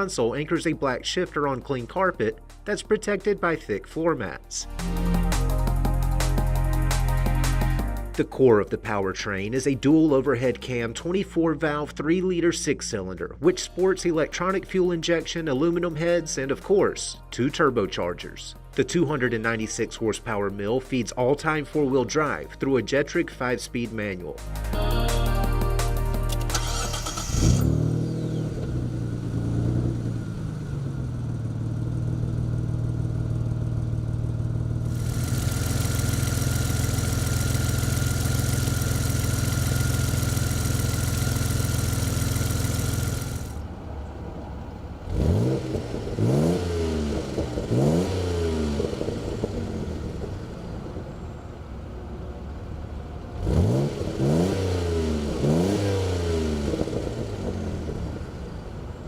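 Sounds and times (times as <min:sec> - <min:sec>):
car engine revving: 0:26.4 - 0:43.8, 0:45.0 - 0:51.0, 0:53.4 - 0:58.8
car engine idling: 0:26.4 - 0:45.1.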